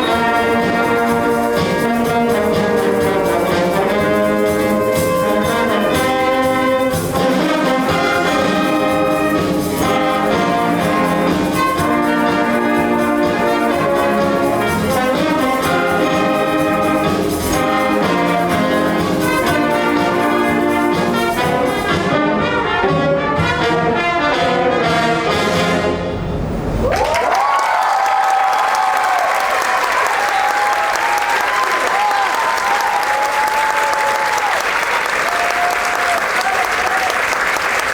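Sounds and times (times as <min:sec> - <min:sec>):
brass band playing: 0:00.0 - 0:27.2
trombones: 0:00.0 - 0:27.2
trumpets: 0:00.0 - 0:27.4.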